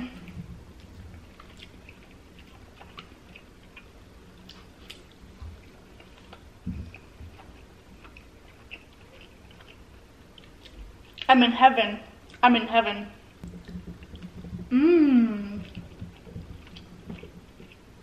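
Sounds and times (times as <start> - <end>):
person chewing quietly: 0.0 - 11.3, 13.4 - 18.0
soft low thumps: 6.6 - 7.4, 13.4 - 17.6.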